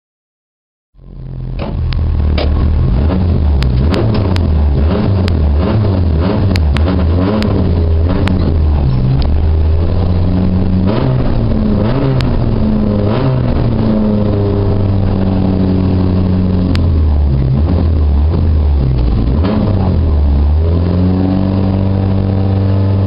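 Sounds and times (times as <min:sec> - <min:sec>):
car engine revving: 0:01.0 - 0:23.0
sharp clicks: 0:03.6 - 0:04.5, 0:06.4 - 0:09.4.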